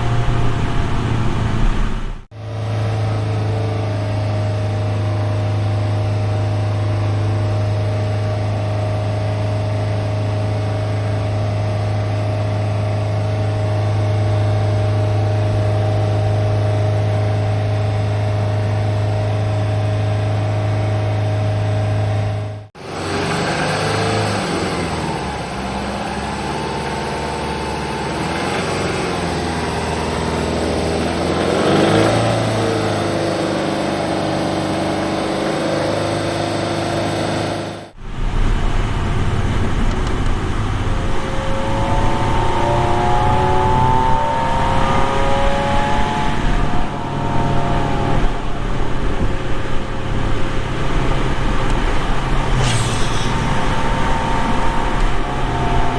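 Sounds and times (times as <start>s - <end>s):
car exhaust idling and revving: 0.0s - 55.9s.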